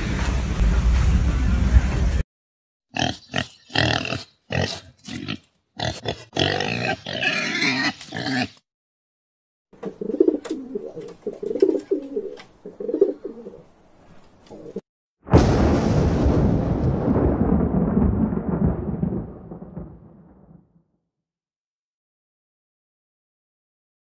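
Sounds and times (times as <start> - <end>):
pigeons cooing: 9.8 - 13.8, 14.4 - 14.8.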